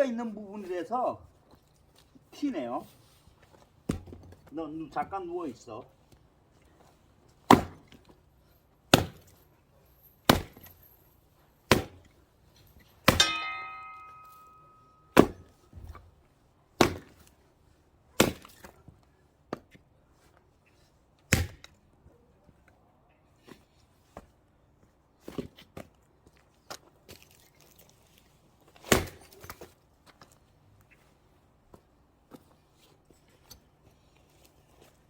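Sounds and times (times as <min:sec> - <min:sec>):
axe chopping log: 0:07.4 - 0:08.0, 0:08.9 - 0:09.3, 0:10.3 - 0:10.7, 0:11.7 - 0:12.1, 0:13.0 - 0:14.2, 0:15.1 - 0:15.5, 0:16.8 - 0:17.3, 0:18.2 - 0:18.8, 0:21.3 - 0:21.8, 0:28.8 - 0:29.4.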